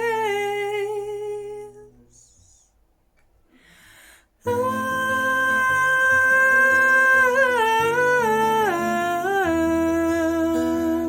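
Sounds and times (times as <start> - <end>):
acoustic guitar: 0.0 - 11.0
woman singing wordless note: 4.5 - 11.0.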